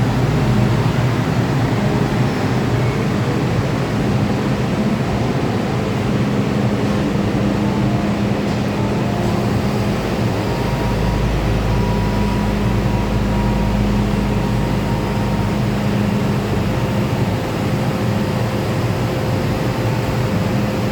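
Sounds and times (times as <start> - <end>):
train equipment hum and whir: 0.0 - 20.9.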